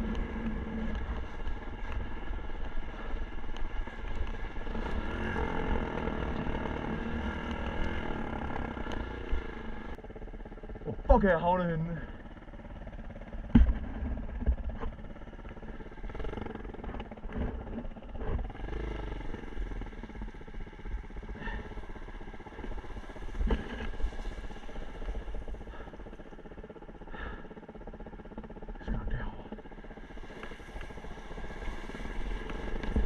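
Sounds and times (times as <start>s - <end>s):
dirt bike engine running: 0.0s - 33.0s
knocks and thumps: 13.5s - 14.9s.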